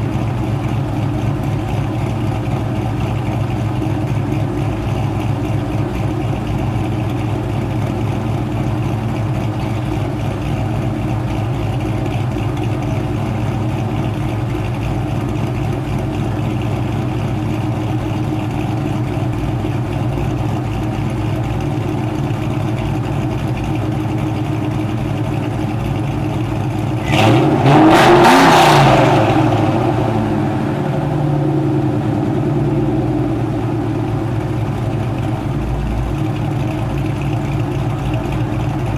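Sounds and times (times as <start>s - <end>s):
car engine idling: 0.0s - 38.9s
engine revving: 26.8s - 38.9s.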